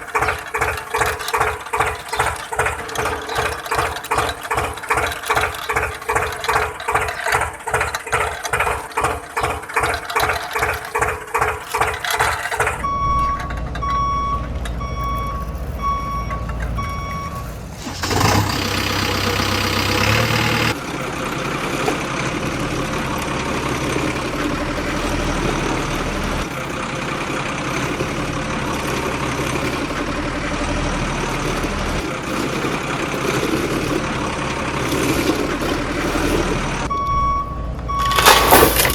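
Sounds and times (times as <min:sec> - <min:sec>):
rapid ratcheting clicks: 0:00.0 - 0:12.8
engine running: 0:00.0 - 0:38.9
vehicle reversing beeper: 0:12.2 - 0:38.9.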